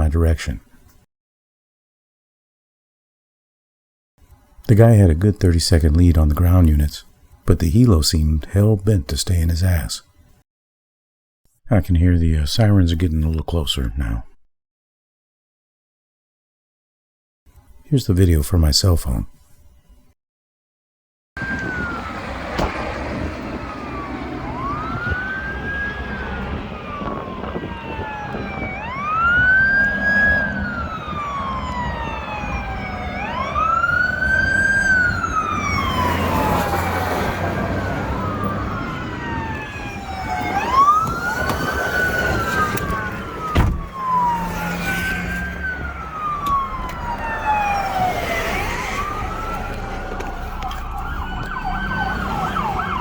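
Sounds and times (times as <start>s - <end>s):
emergency sirens wailing: 21.4s - 53.0s
low traffic noise: 21.4s - 53.0s
sharp thump: 22.5s - 23.1s, 43.5s - 44.0s.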